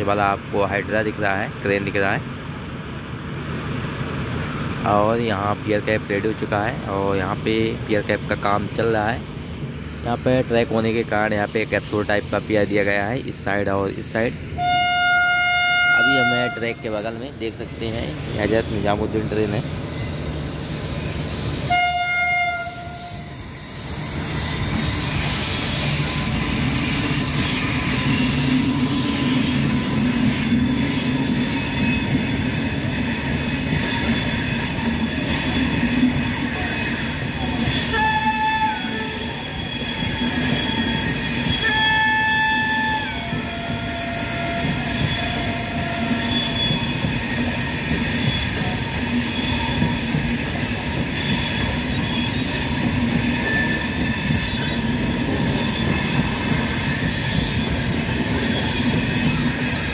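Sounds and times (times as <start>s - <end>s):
train coaches rolling on rails: 0.0s - 59.9s
train horn blast: 14.6s - 17.0s, 21.7s - 23.3s, 37.8s - 39.4s, 41.5s - 44.8s.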